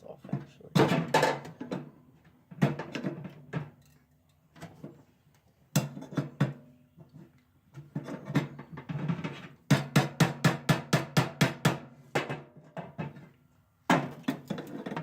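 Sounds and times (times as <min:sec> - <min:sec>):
tools knocking on sheet metal: 0:08.3 - 0:13.2.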